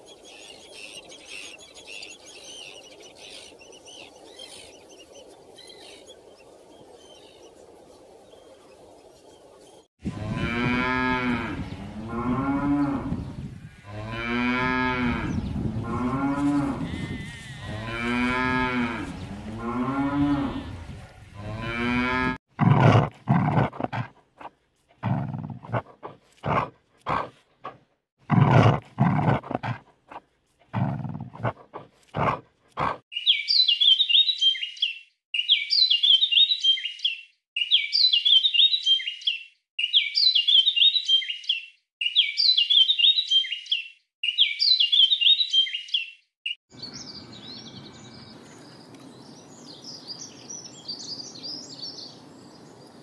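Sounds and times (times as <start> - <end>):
bird chirping: 0.0 - 9.9, 33.1 - 53.0
cattle mooing: 10.1 - 23.0.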